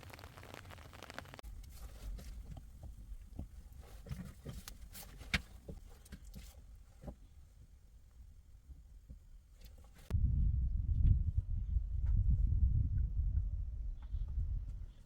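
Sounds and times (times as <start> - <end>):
rain pattering: 0.0 - 1.4
low rumble: 10.1 - 15.0.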